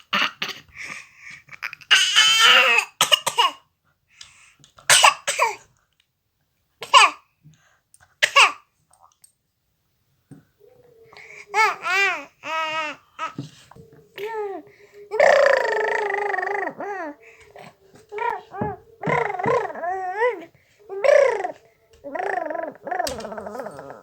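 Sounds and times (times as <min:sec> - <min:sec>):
baby coughing: 0:00.0 - 0:00.7, 0:01.6 - 0:03.7, 0:04.9 - 0:05.7, 0:06.8 - 0:07.3, 0:08.2 - 0:08.7, 0:18.2 - 0:20.4
baby babbling squeal: 0:11.4 - 0:13.4, 0:14.2 - 0:24.0.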